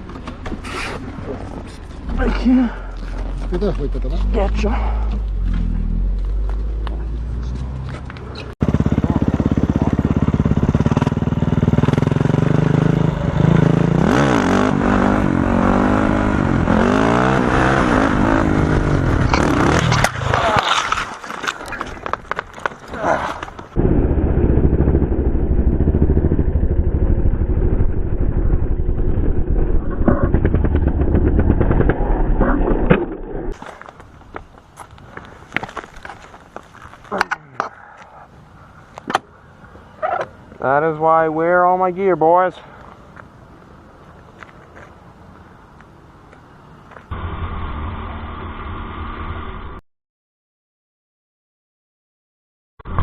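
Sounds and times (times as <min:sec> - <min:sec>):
motorcycle engine revving: 0:07.4 - 0:20.6, 0:23.8 - 0:32.5
wind noise: 0:16.2 - 0:33.6.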